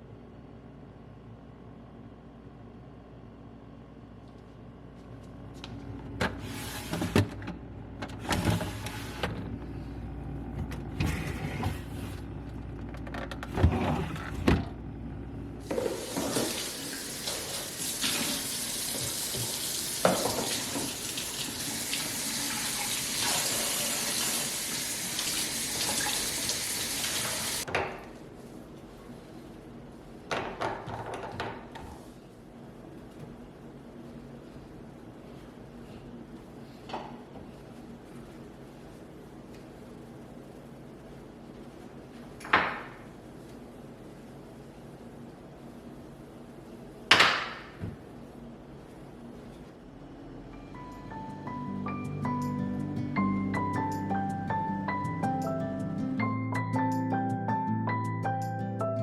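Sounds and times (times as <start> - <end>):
tap running into sink: 15.7 - 21.0.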